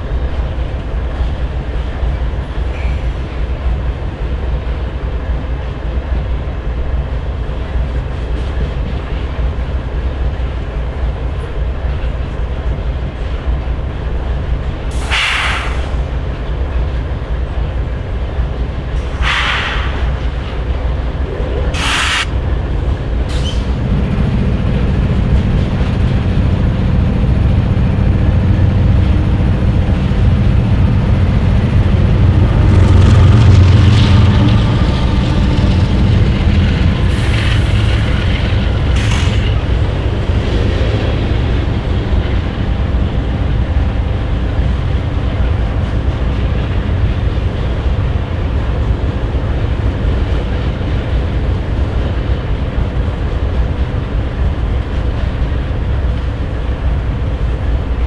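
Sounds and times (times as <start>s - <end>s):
diesel locomotives idling: 0.0s - 58.0s
freight cars rolling past: 18.2s - 57.4s.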